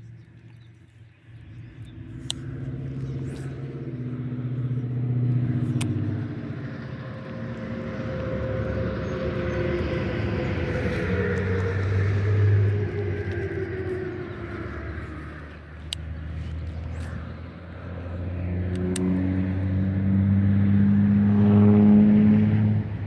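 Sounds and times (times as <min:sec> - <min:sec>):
vehicle engine running: 0:00.0 - 0:23.0
sharp clicks: 0:01.8 - 0:19.6.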